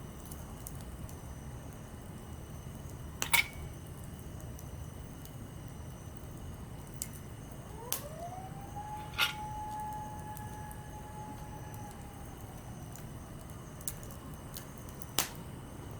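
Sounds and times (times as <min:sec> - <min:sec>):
campfire burning: 0:00.0 - 0:15.9
fire crackling pops: 0:00.0 - 0:15.9
thin rising whistle: 0:07.8 - 0:12.9.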